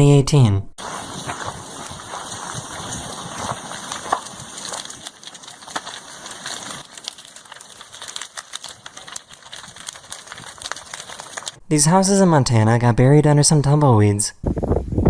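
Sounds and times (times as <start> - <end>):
fire crackling and popping: 0.8 - 11.8.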